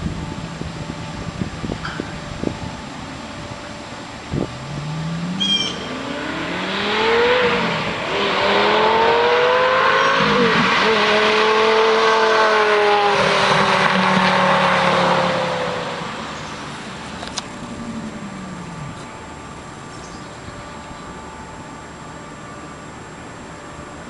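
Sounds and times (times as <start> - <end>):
sports car accelerating past: 4.4 - 19.1.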